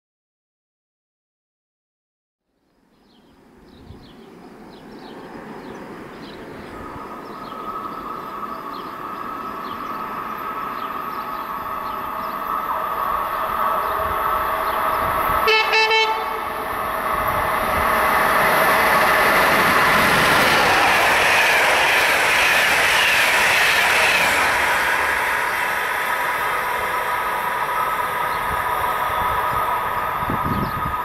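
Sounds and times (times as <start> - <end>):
train rumble and whine: 3.4 - 31.0
train horn blast: 15.4 - 16.6.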